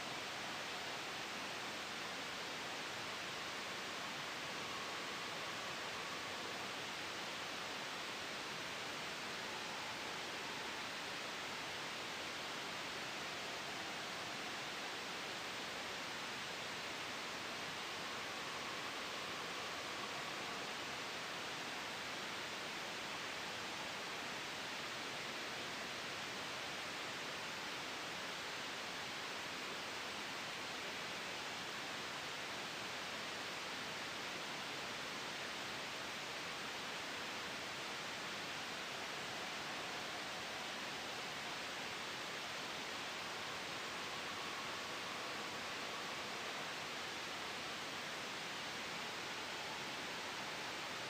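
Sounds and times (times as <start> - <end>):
gentle wind: 0.0 - 51.0
steady white noise: 0.0 - 51.0.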